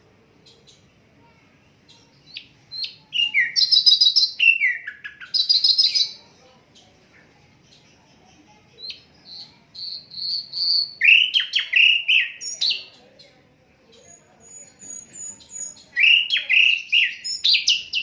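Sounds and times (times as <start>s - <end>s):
bird singing whistles and trills: 2.3s - 6.2s, 8.8s - 13.0s, 14.0s - 18.0s.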